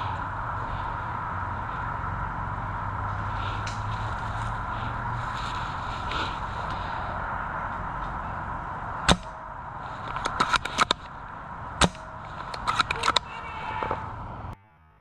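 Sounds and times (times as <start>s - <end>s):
airsoft gun shots: 9.1s - 9.4s, 11.8s - 12.1s.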